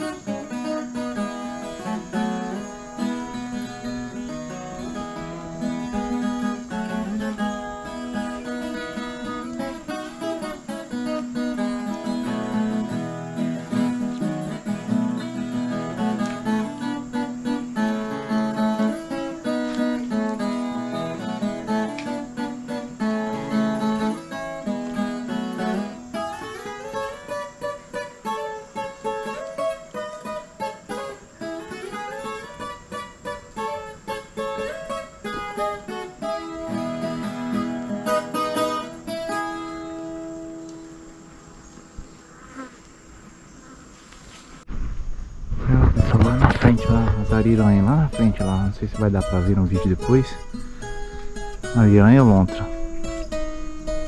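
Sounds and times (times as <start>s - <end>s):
acoustic guitar music: 0.0s - 54.0s.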